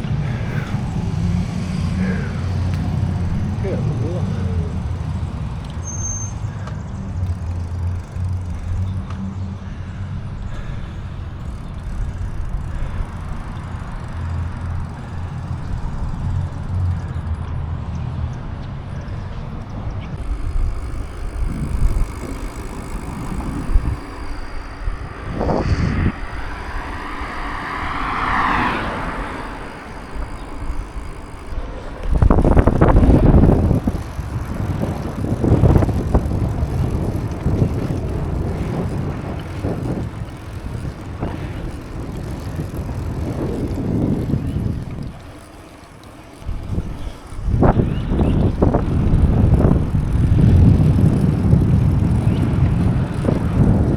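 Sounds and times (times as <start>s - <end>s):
wind buffeting microphone: 0.0s - 53.9s
high whine: 20.1s - 48.8s.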